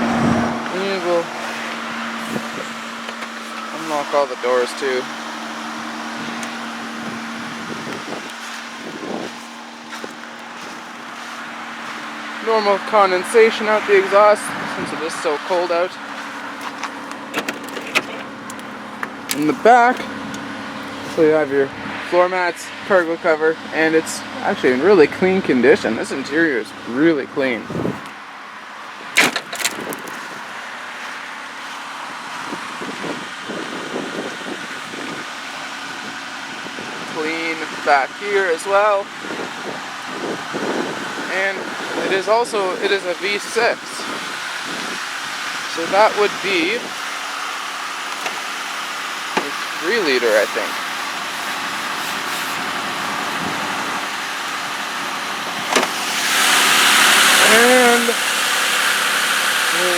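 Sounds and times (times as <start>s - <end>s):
handling noise: 0.0s - 4.1s, 16.0s - 21.3s, 29.0s - 31.3s, 47.9s - 54.6s, 55.2s - 56.2s
car engine idling: 0.0s - 59.9s.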